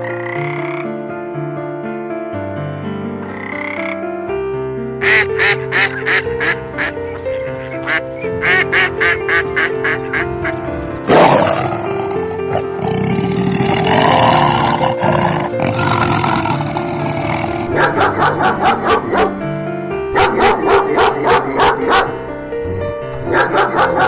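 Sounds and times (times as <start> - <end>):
background music: 0.0 - 24.0
duck quacking: 5.0 - 10.7, 20.2 - 24.0
harsh animal call: 5.0 - 19.4, 20.2 - 24.0.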